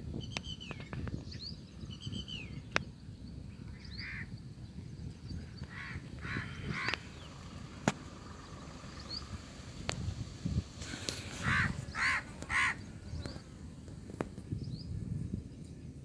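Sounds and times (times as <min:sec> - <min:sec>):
birds chirping: 0:00.1 - 0:16.0
harsh scratchy bird calls: 0:03.6 - 0:04.4, 0:05.2 - 0:09.9, 0:10.8 - 0:14.5.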